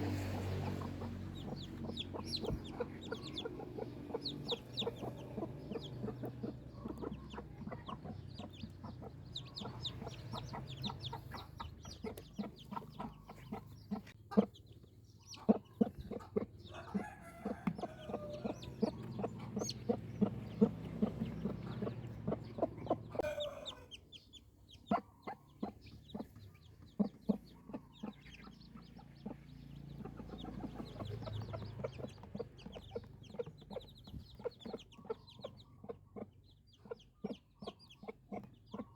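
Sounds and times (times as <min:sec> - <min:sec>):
chickens clucking: 0:00.0 - 0:38.9
chicks peeping: 0:00.0 - 0:38.9.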